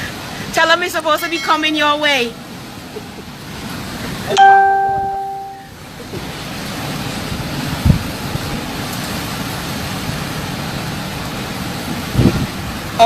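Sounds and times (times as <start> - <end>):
electronic phone chime: 4.4 - 5.7
strong wind rushing: 11.8 - 13.0.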